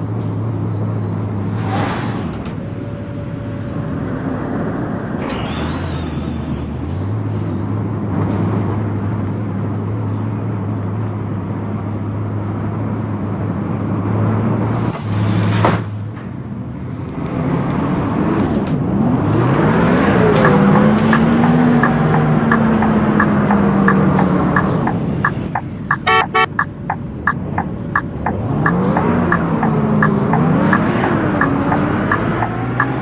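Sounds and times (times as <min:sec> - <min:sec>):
bus engine changing gears: 0:00.0 - 0:33.0
steady ticking: 0:20.0 - 0:33.0
rapid electronic beeps: 0:20.4 - 0:26.7.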